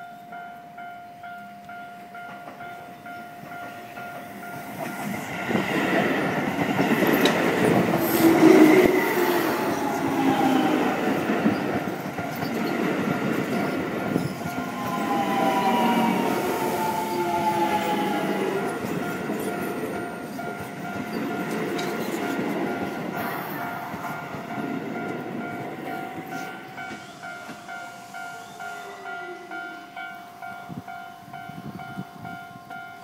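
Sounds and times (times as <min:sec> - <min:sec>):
electric train passing: 0:00.0 - 0:33.0
falling whining tones: 0:06.2 - 0:25.2.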